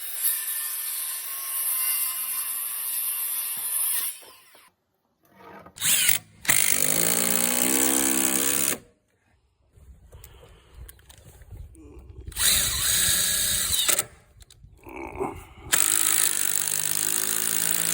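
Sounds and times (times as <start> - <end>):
impact driver driving screw into wood: 5.8 - 8.8, 12.4 - 14.2, 15.8 - 17.9.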